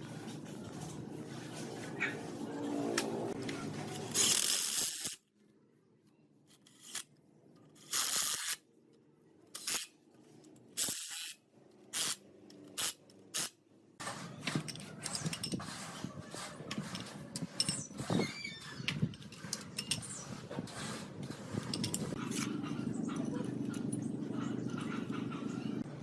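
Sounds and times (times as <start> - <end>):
small scraping and knocking: 14.0 - 22.6.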